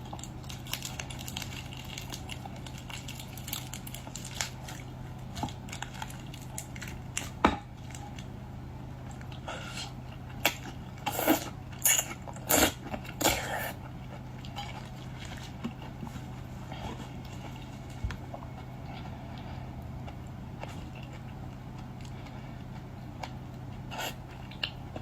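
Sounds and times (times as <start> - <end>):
shells crunching and cracking: 0.0 - 8.3
person chewing seafood: 9.2 - 25.0.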